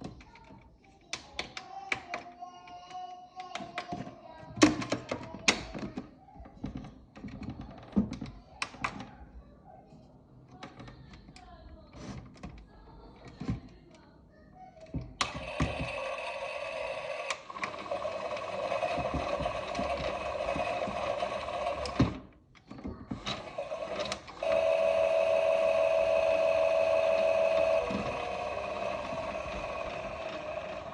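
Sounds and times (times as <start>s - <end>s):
toy washing machine motor hum: 14.9s - 30.9s
steady tone: 24.4s - 30.9s.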